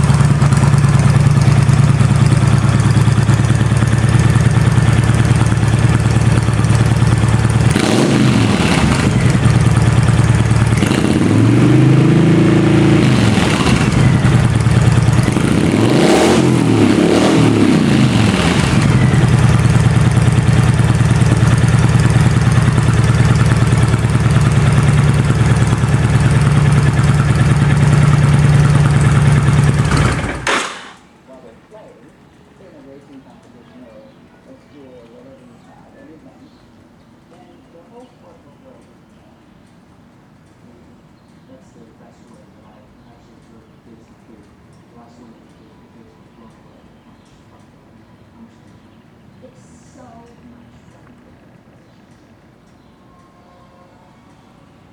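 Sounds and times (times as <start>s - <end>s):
motorcycle engine idling and revving: 0.0s - 30.9s, 47.5s - 54.9s.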